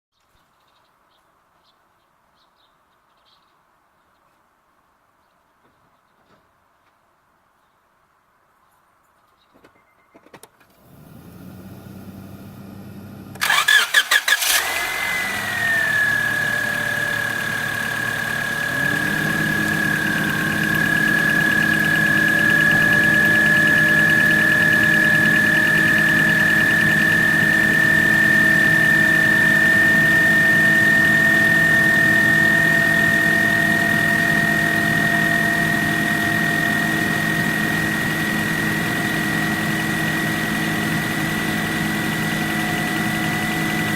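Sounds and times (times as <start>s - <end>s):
engine idling: 10.8s - 43.9s
engine starter cranking: 13.3s - 36.1s
high steady whine: 14.6s - 43.9s.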